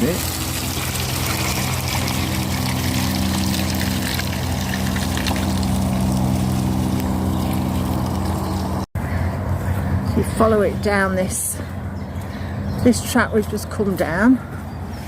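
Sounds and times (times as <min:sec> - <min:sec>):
electric motors humming: 0:00.0 - 0:08.9
tyres through wet ground: 0:00.0 - 0:15.0.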